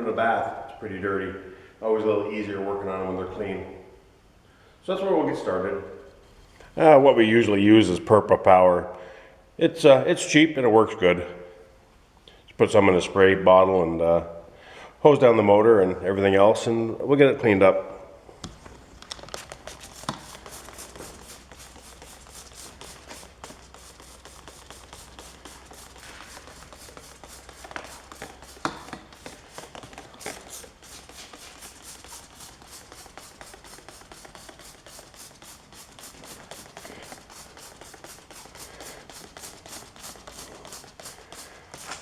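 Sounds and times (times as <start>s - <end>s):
spray bottle squirting: 19.1s - 42.0s.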